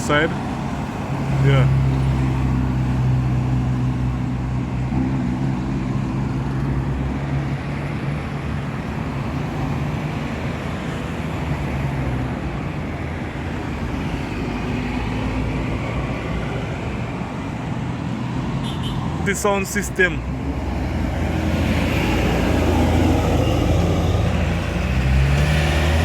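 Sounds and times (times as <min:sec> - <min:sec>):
road noise: 0:00.0 - 0:26.0
vehicle engine droning: 0:20.3 - 0:26.0.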